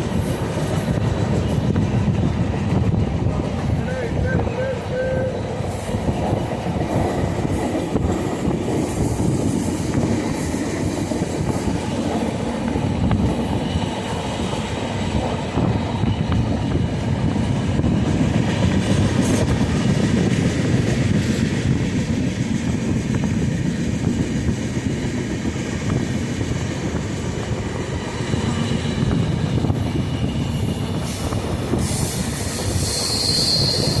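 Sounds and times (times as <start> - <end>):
high-pitched squeal: 28.3 - 34.0.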